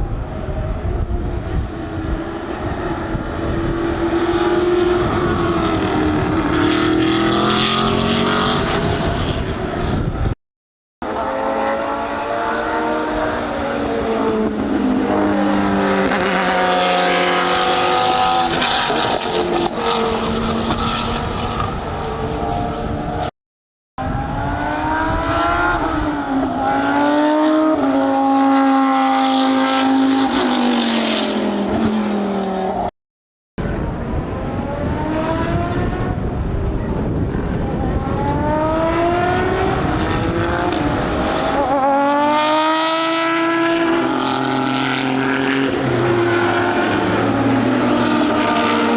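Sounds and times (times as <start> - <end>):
racing car engines upshifting: 37.5 - 48.9.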